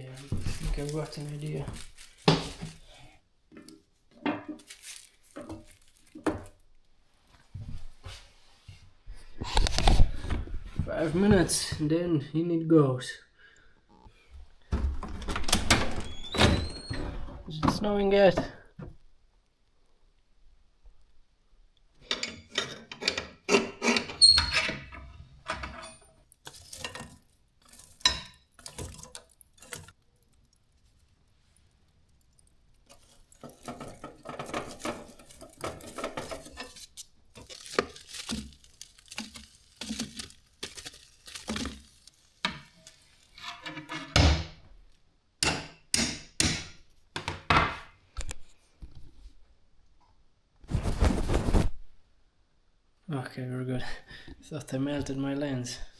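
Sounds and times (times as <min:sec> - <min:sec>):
cookware knocking and clattering: 0:33.4 - 0:36.8.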